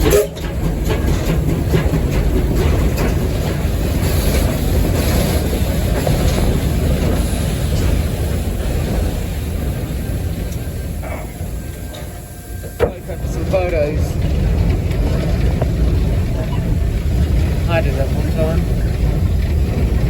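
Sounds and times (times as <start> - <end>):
locomotive wheels rumbling on rails: 0.0 - 20.0
faint irregular clicks: 10.5 - 13.1.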